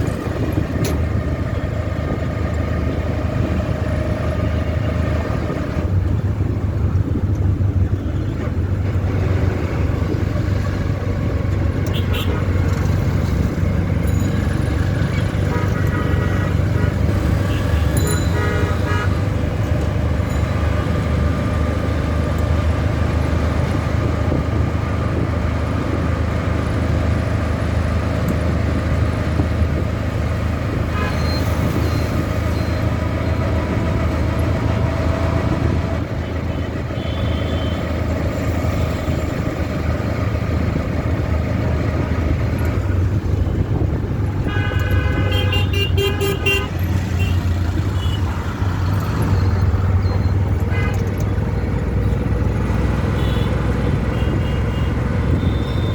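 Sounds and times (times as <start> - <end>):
horn toot: 15.4 - 19.3, 44.4 - 48.3.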